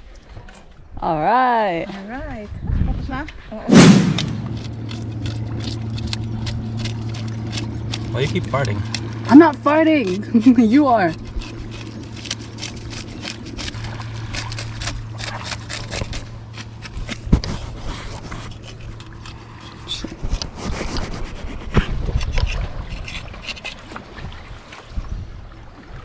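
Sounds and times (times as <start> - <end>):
heavy thump: 3.7 - 4.8
knife scraping fish: 10.4 - 24.0.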